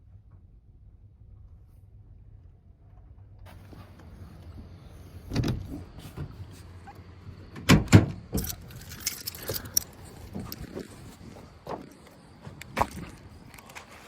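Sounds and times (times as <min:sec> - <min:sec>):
knocks and rattles of handling: 0:07.7 - 0:14.0
keys jangling: 0:08.4 - 0:14.0.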